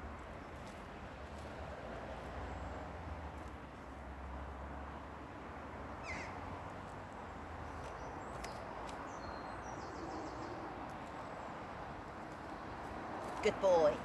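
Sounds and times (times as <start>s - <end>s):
birds calling: 6.0s - 6.4s.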